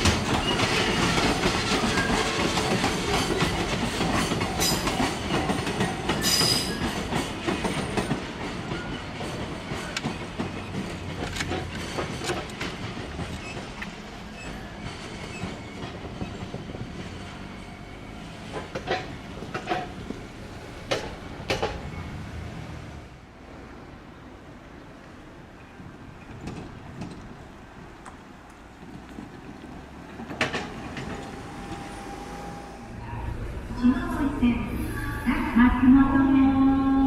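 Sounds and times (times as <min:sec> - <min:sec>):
train wheels clattering on rails: 0:00.0 - 0:22.3, 0:25.9 - 0:32.6.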